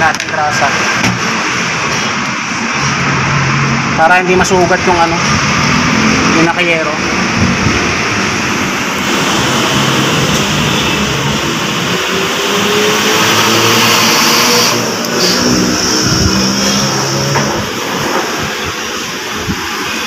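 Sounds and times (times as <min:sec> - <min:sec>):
vehicle engine revving: 0:05.2 - 0:19.6.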